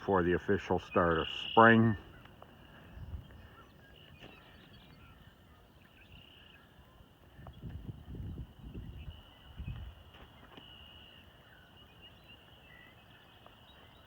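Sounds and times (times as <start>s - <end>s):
chorus of calling animals: 0.0s - 7.2s
footsteps on trail: 0.6s - 5.1s, 9.7s - 10.8s.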